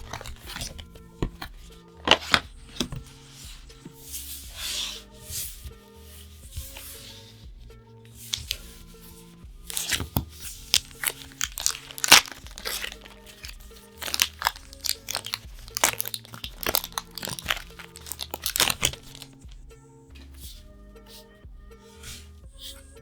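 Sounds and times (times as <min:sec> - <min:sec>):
foil wrapper tearing and crinkling: 0:00.0 - 0:03.3, 0:08.2 - 0:08.7, 0:09.7 - 0:19.5
background music with held tones: 0:00.0 - 0:23.0.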